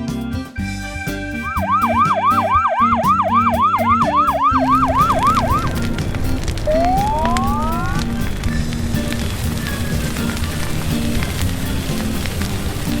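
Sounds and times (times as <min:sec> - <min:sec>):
background music: 0:00.0 - 0:13.0
rising whistle: 0:01.3 - 0:05.9, 0:06.7 - 0:11.2
cartoon siren warbling: 0:01.4 - 0:05.8, 0:06.7 - 0:08.2.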